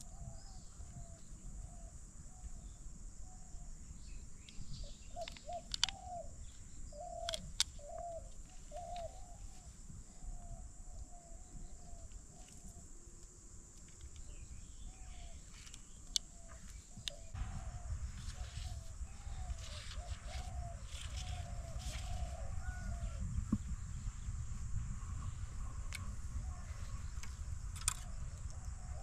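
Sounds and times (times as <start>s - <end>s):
sharp clicks: 5.2s - 8.0s, 15.6s - 16.3s, 27.2s - 28.6s
low steady rumble: 16.4s - 29.0s.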